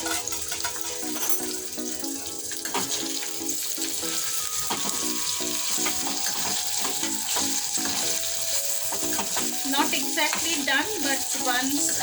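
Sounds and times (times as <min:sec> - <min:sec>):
spatula scraping and knocking pot: 0:00.0 - 0:01.6, 0:05.8 - 0:10.7
food sizzling in a pot: 0:00.0 - 0:12.0.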